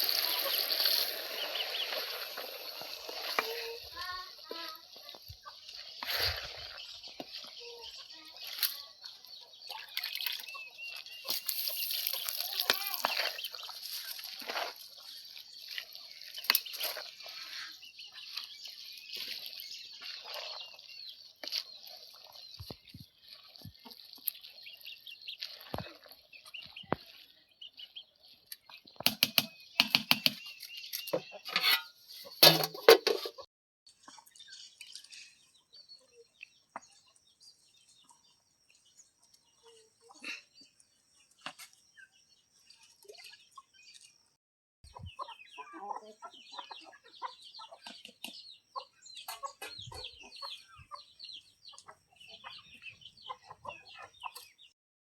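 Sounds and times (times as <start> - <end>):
sharp clattering knocks and clinks: 31.0 - 33.4.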